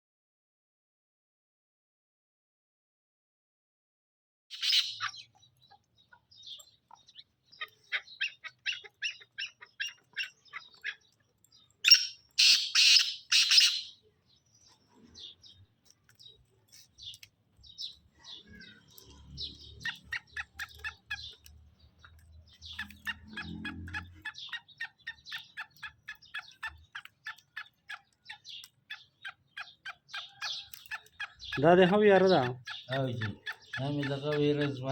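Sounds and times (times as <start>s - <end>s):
harsh rasping bird call: 4.5s - 5.3s, 11.8s - 14.0s
bird clicking notes: 19.8s - 34.8s.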